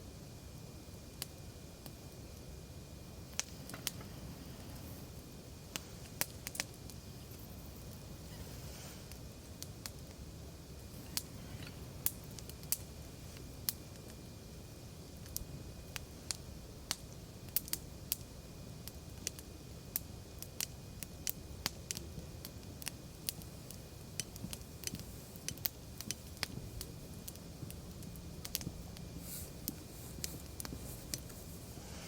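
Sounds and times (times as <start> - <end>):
wood fire crackling: 0.0 - 32.0
rush of flame: 0.2 - 32.0
short hiss: 8.2 - 9.2, 29.2 - 32.0.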